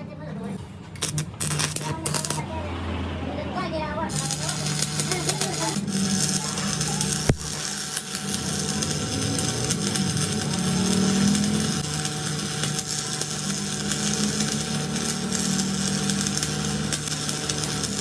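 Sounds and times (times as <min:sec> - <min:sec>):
machine humming: 0:04.1 - 0:18.0.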